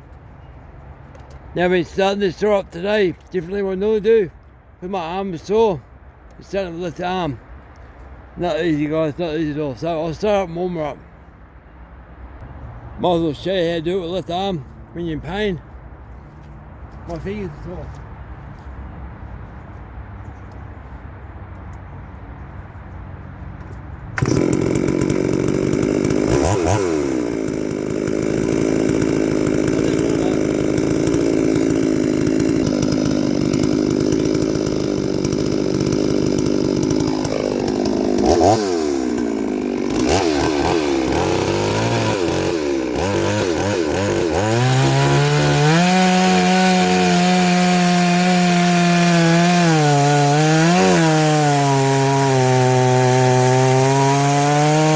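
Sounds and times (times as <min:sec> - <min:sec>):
chainsaw cutting wood: 0:24.2 - 0:54.9.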